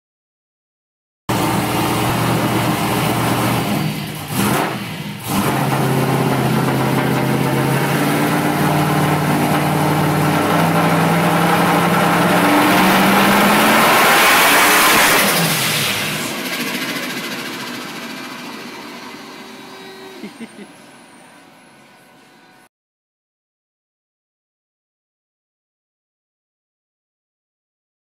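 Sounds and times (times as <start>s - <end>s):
car engine running: 1.3s - 22.6s.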